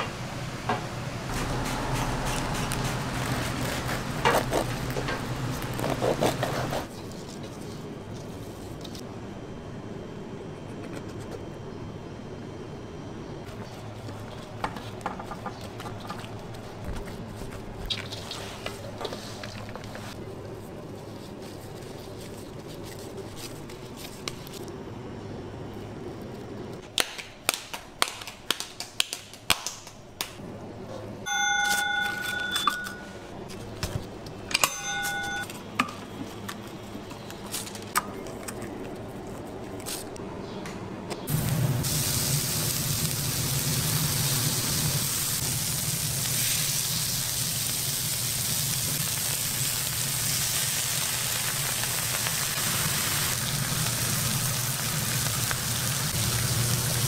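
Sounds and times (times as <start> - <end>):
meat slapped in steel bowls: 26.9 - 30.4
patties sizzling on a griddle: 41.3 - 57.0.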